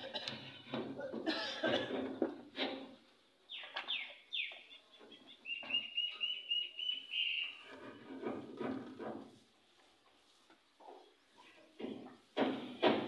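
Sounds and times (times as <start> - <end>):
bird calling: 3.5 - 7.8.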